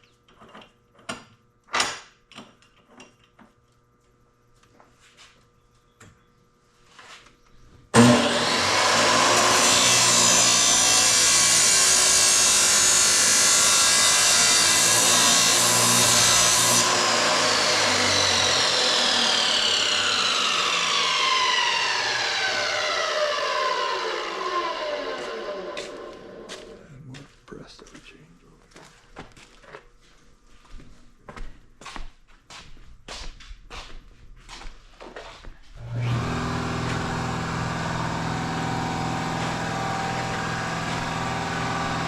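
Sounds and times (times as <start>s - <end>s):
power tool grinding: 8.0s - 26.8s, 35.8s - 42.0s
motor whine spinning down: 16.9s - 26.8s, 35.8s - 42.0s.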